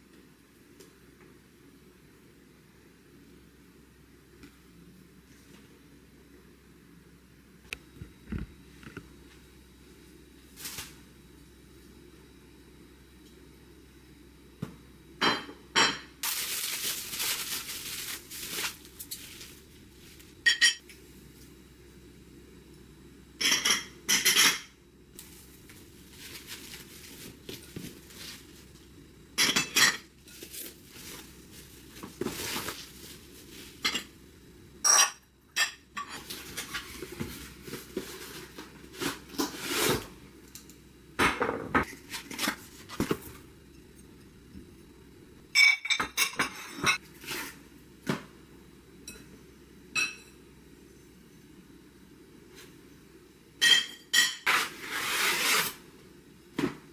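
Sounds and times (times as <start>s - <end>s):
dishes clinking: 20.5s - 20.8s, 29.4s - 30.1s, 45.5s - 47.0s, 53.6s - 54.4s.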